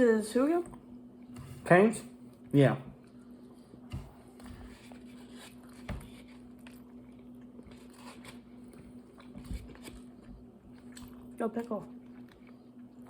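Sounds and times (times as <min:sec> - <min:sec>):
low steady hum: 0:00.0 - 0:13.0
chewing and crunching: 0:04.3 - 0:13.0.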